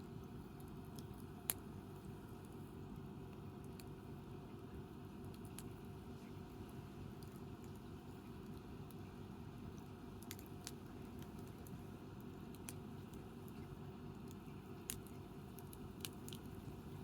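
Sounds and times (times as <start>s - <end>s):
low steady noise: 0.0s - 17.0s
campfire crackling and popping: 9.7s - 17.0s.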